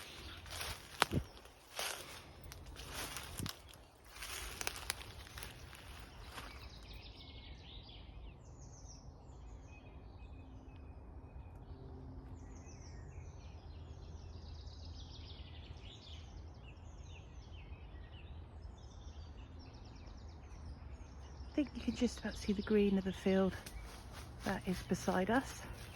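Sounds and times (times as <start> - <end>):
low outdoor rumble: 0.0 - 6.8, 19.7 - 25.9
songbirds chirping and trilling: 0.0 - 25.9.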